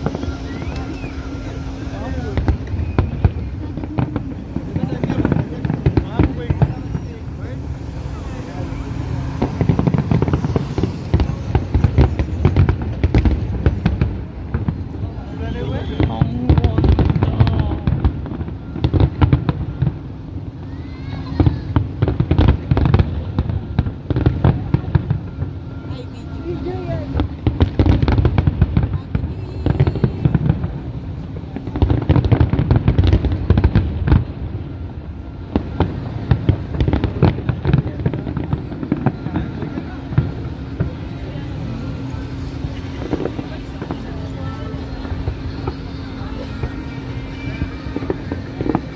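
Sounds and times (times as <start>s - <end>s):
low rumble of bursting shells: 0.0s - 20.6s
fireworks cracking and popping: 0.0s - 48.9s.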